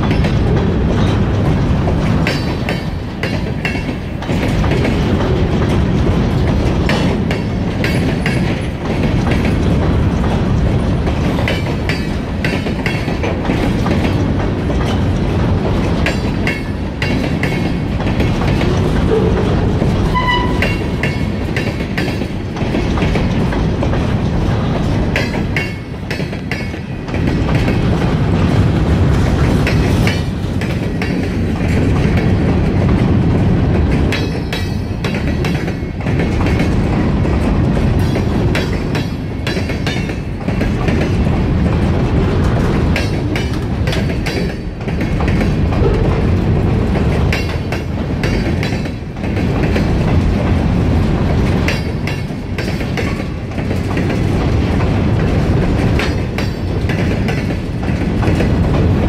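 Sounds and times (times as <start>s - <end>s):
freight train rumbling past: 0.0s - 59.0s
wheels clicking over rail joints: 0.0s - 59.0s.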